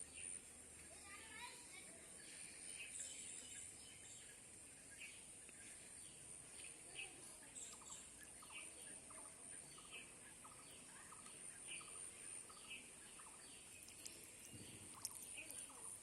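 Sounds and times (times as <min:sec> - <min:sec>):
high-pitched outdoor hiss: 0:00.0 - 0:16.0.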